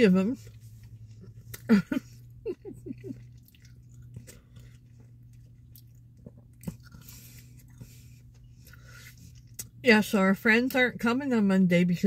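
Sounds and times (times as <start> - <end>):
steady low hum: 0.0 - 12.0
person chewing fries: 0.3 - 9.8.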